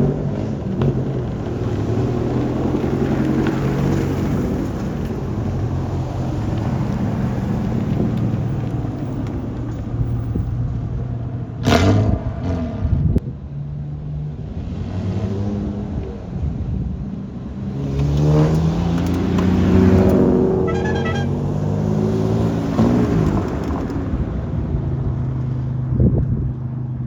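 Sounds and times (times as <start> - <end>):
car engines driving past: 0.0 - 27.0
car engine revving up: 17.5 - 24.3.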